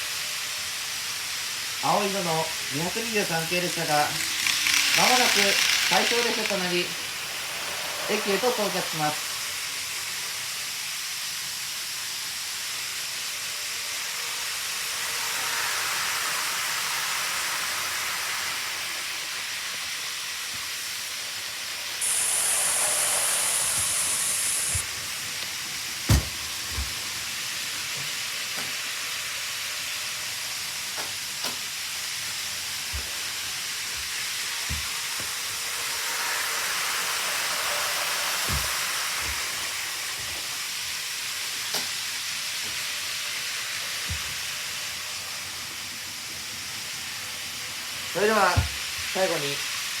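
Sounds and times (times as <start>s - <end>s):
sharp high hiss: 0.0s - 25.6s
model trains running hiss: 0.0s - 50.0s.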